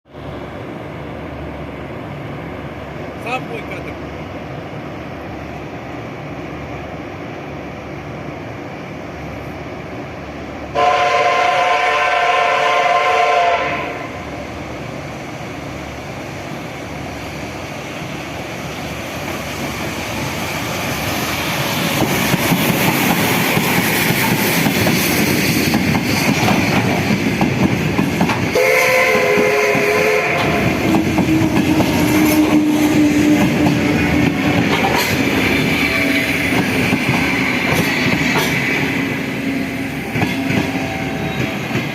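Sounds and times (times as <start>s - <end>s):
train horn: 10.7s - 14.3s, 28.5s - 34.0s
train wheels clattering on rails: 19.1s - 41.9s.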